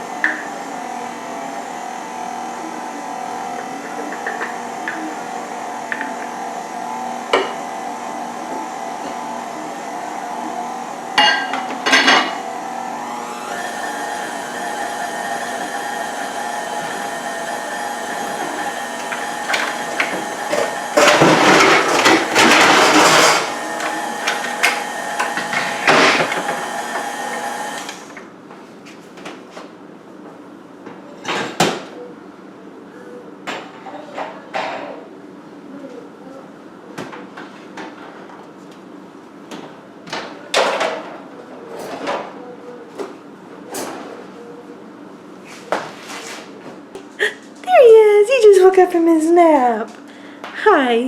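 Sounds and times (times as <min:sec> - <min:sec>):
electric mixer running: 0:00.0 - 0:28.4.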